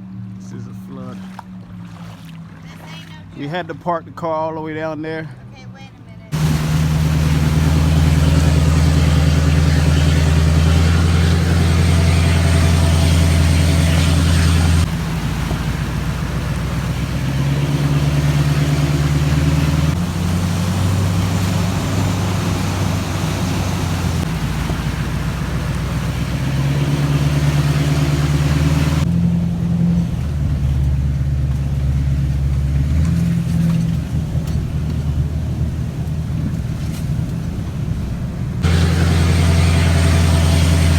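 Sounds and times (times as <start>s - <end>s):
vehicle engine running: 6.3s - 40.9s
noisy rush: 6.4s - 29.1s, 37.8s - 40.9s.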